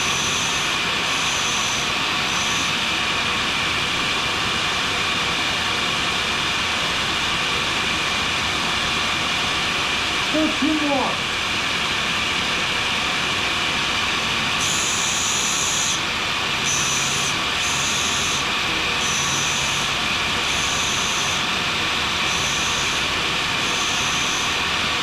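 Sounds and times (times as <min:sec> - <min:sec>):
grinder running: 0:00.0 - 0:03.5, 0:14.2 - 0:24.7
scraper grinding hiss on wheel: 0:14.6 - 0:21.5, 0:22.2 - 0:24.6.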